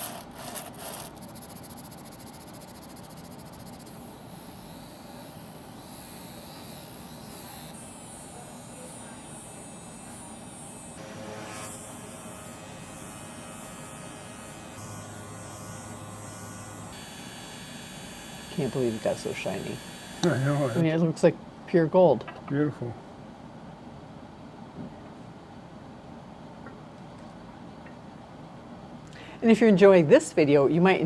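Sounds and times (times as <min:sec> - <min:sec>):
small electric power tool buzzing: 0:00.0 - 0:21.0.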